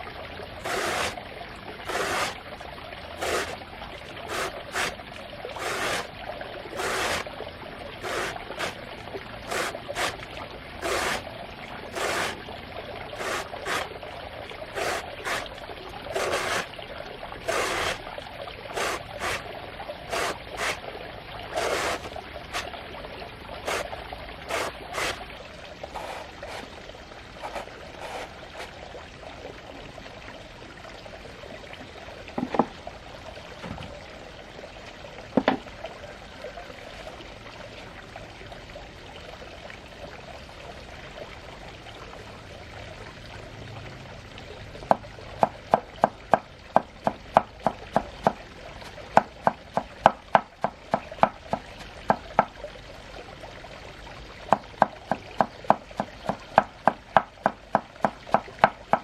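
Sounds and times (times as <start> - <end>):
water trickling and pouring: 0.0 - 59.0
knocks: 32.4 - 32.7, 35.4 - 35.6.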